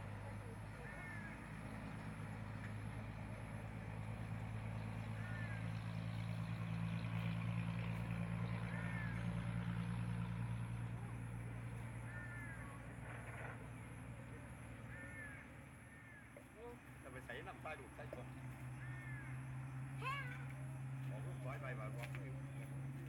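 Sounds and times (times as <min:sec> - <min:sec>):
combine harvester engine: 0:00.0 - 0:23.0
bird calling: 0:05.0 - 0:05.9, 0:08.4 - 0:09.5, 0:12.0 - 0:12.8, 0:14.8 - 0:16.8, 0:18.0 - 0:22.8.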